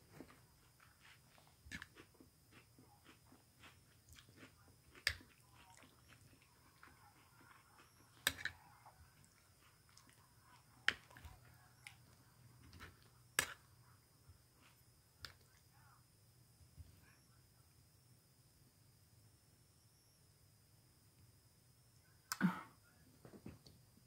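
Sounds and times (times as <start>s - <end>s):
chewing and mouth sounds: 0.6s - 13.6s.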